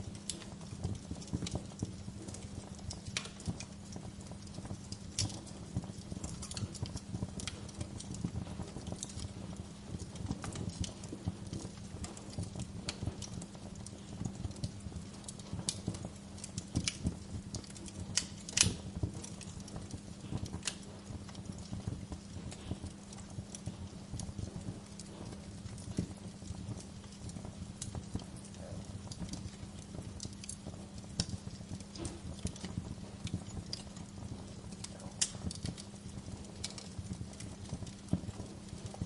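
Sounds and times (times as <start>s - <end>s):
steady low hum: 0.0s - 39.0s
wood fire crackling and popping: 0.0s - 39.0s.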